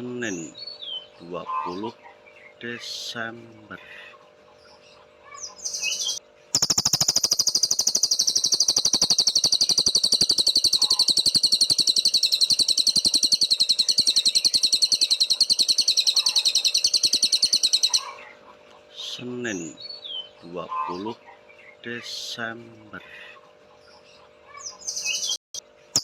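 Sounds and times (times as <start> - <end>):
songbird fast trill: 5.3 - 18.2.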